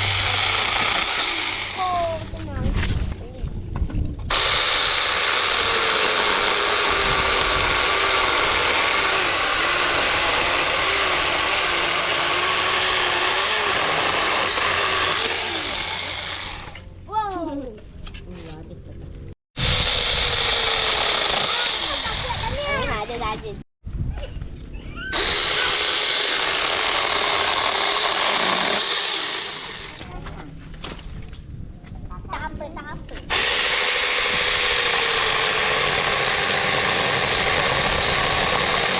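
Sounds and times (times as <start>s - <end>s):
electric chainsaw motor whine: 0.0s - 1.9s, 4.3s - 16.8s, 19.6s - 22.6s, 25.1s - 30.0s, 33.3s - 38.9s.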